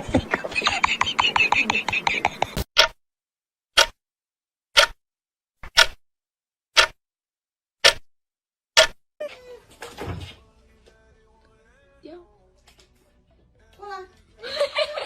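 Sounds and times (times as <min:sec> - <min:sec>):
clock-like ticking: 0:00.8 - 0:03.0, 0:03.8 - 0:04.0, 0:04.8 - 0:05.0, 0:05.7 - 0:06.0, 0:06.8 - 0:07.0.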